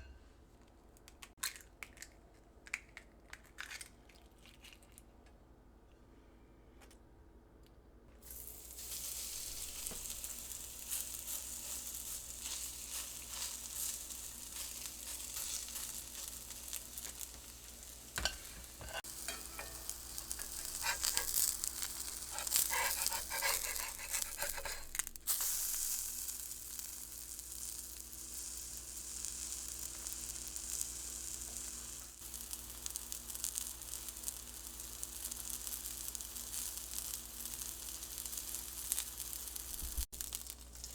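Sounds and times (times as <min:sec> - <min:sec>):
fritters sizzling in hot oil: 0:08.2 - 0:40.9
oil crackling and clicking: 0:39.4 - 0:40.9.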